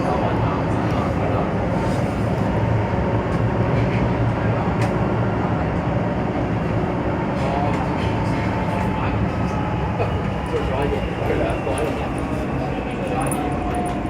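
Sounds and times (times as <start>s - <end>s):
train cabin low rumble: 0.0s - 14.0s.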